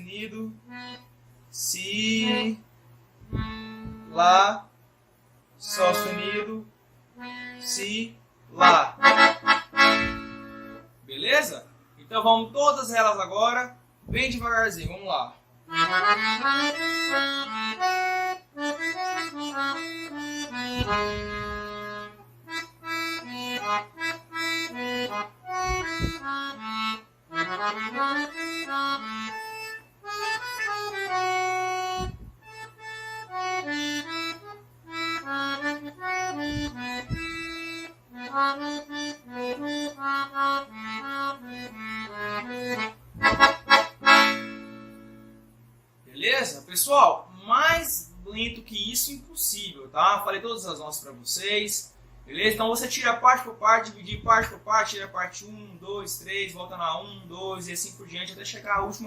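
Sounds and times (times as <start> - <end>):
accordion playing slow melody: 0.5 - 4.2, 5.6 - 8.0, 8.6 - 11.0, 15.6 - 45.7.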